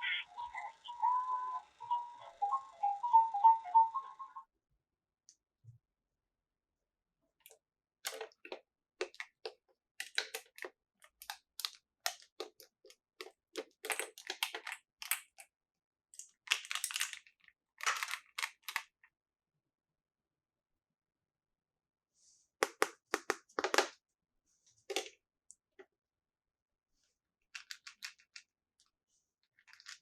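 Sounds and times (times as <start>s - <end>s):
plastic toy pieces clicking: 8.1s - 15.5s, 16.2s - 19.0s, 27.5s - 28.5s, 29.5s - 30.0s.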